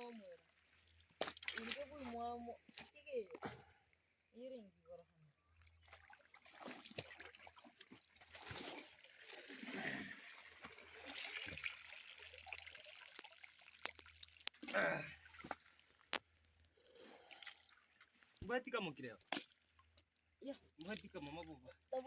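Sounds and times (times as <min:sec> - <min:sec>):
river water splashing: 0:00.9 - 0:02.2, 0:05.8 - 0:15.8
clothes washed by hand: 0:00.9 - 0:02.9, 0:05.6 - 0:16.0.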